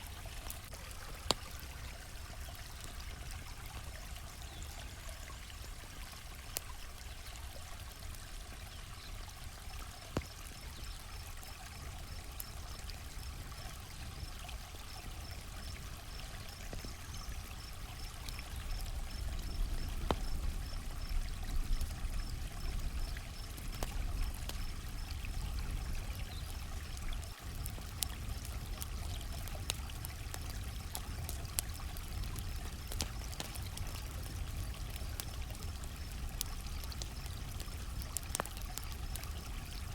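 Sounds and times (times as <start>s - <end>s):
campfire crackling and popping: 0.0s - 39.9s
cricket chirping: 9.7s - 28.6s.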